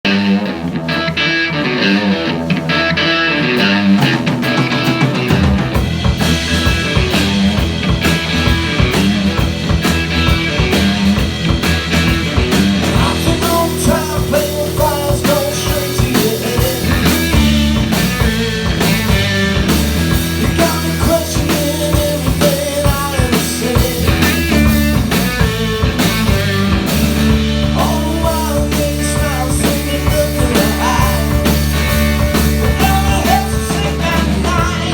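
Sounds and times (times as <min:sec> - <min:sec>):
bass guitar: 0:00.0 - 0:34.9
drums: 0:00.0 - 0:34.9
electric guitar: 0:00.0 - 0:34.9
live rock band playing: 0:00.0 - 0:34.9.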